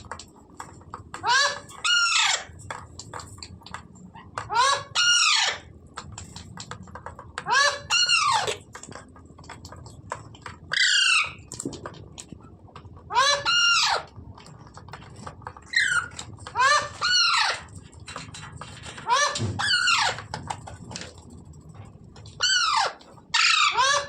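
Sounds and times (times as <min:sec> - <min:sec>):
parrot squawking: 0:01.2 - 0:02.5, 0:04.2 - 0:05.7, 0:07.5 - 0:08.6, 0:10.7 - 0:11.5, 0:13.1 - 0:14.1, 0:15.7 - 0:17.7, 0:19.0 - 0:20.2, 0:22.4 - 0:24.0.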